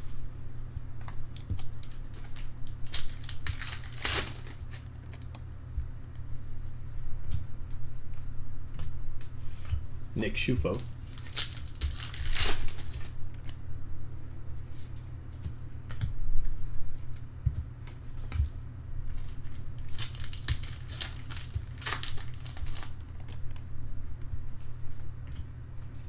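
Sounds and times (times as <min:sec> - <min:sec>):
steady low hum: 0:00.0 - 0:26.0
foil wrappers crinkling and tearing: 0:01.1 - 0:05.4, 0:10.4 - 0:13.6, 0:19.1 - 0:23.6.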